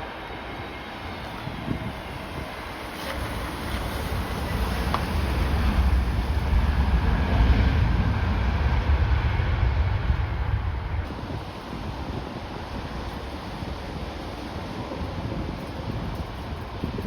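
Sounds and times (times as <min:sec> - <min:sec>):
jet airliner engine rumble: 0:00.0 - 0:17.0
wind buffeting microphone: 0:00.0 - 0:17.0.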